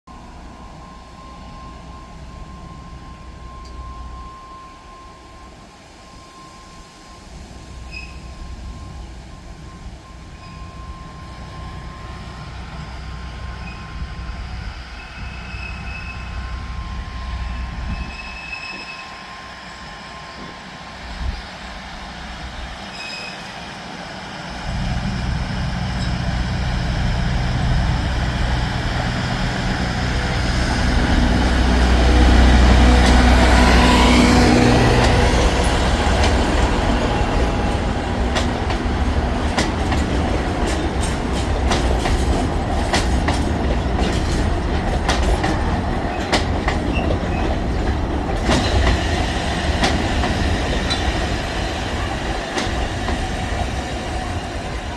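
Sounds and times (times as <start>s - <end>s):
diesel locomotive engine hum: 0.1s - 54.9s
train wheels clicking over rail joints: 25.8s - 54.9s.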